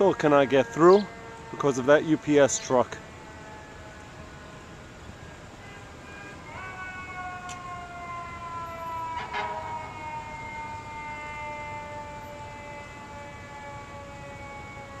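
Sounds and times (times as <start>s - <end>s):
mechanical fire engine siren wailing: 0.0s - 15.0s.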